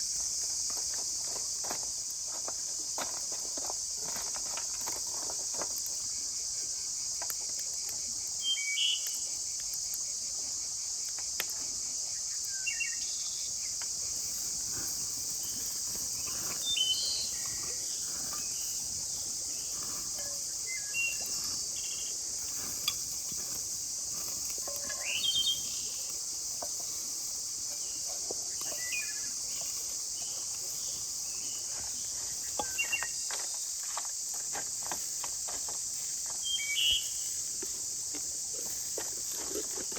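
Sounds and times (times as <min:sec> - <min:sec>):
insect chorus: 0:00.0 - 0:39.9
bird chirps: 0:16.5 - 0:18.8, 0:19.5 - 0:22.1, 0:24.8 - 0:26.0, 0:32.4 - 0:33.2.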